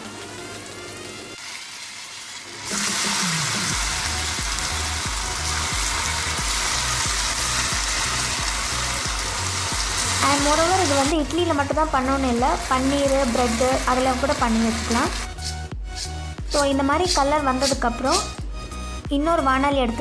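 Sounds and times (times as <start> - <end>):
food sizzling in hot oil: 0.0 - 18.4
music with low beat: 15.1 - 20.0.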